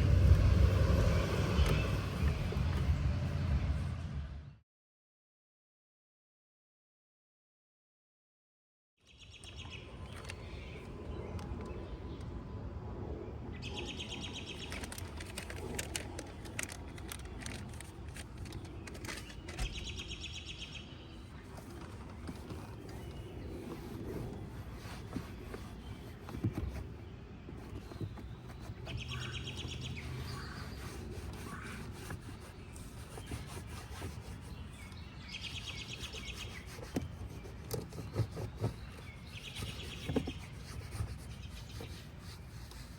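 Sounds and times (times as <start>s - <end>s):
steady low rumble: 0.0s - 4.6s
small clicks and rubbing noises: 9.4s - 12.3s, 14.2s - 20.7s, 21.3s - 42.9s
bird singing rapid trills: 27.8s - 42.2s.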